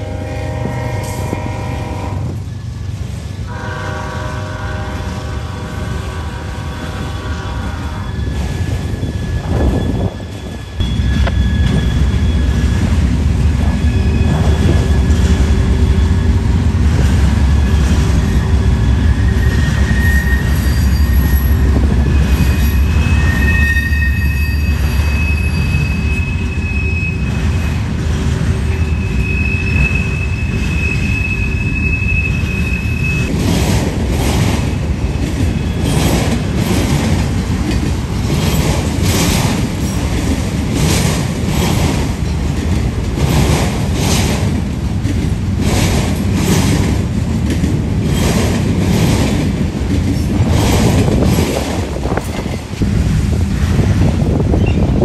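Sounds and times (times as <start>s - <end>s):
freight train rumbling past: 0.0s - 55.0s
high-pitched wheel squeals: 7.7s - 12.9s, 17.6s - 27.6s, 28.7s - 33.3s.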